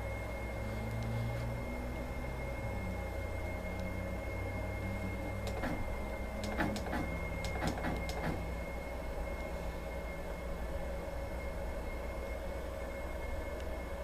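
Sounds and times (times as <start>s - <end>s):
embroidery machine humming: 0.0s - 14.0s
mechanical clicks: 5.4s - 8.5s.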